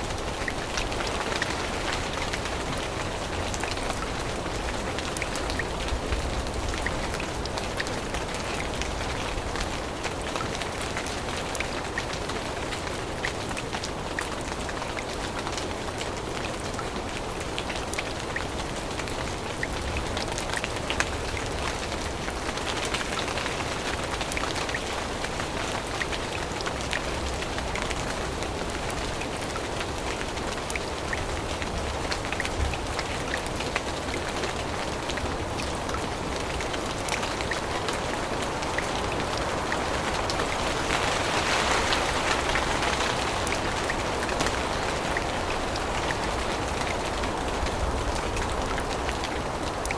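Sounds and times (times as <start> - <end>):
rain on foliage: 0.0 - 49.9.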